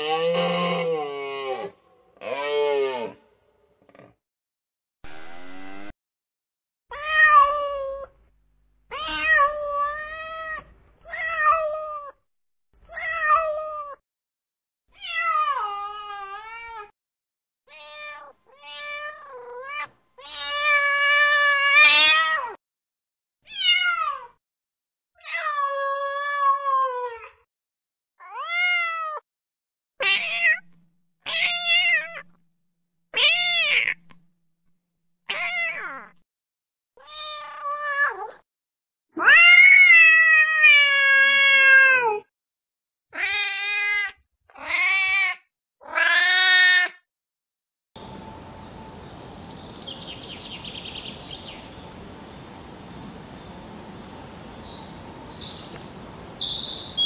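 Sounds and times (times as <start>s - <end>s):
kitten meowing: 8.9s - 12.1s.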